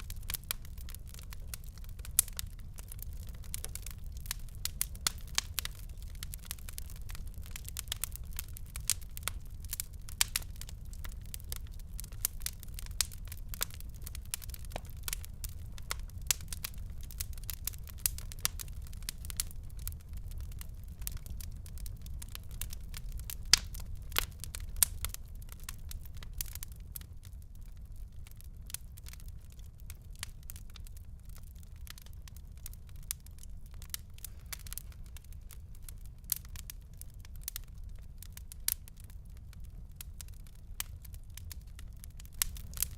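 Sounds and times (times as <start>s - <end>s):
wood fire crackling: 0.0s - 42.9s.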